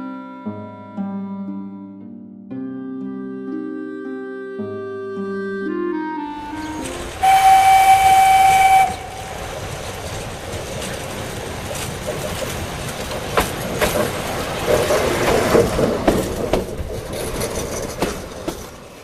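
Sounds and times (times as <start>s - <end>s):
horn steady note: 4.8s - 9.5s
train rumbling along track: 6.4s - 19.0s
wheels clicking over rail joints: 6.4s - 19.0s.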